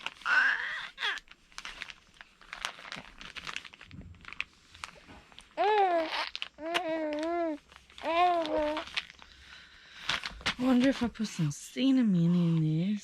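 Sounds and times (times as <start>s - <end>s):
baby making wordless sounds: 0.2s - 1.2s, 5.6s - 8.9s.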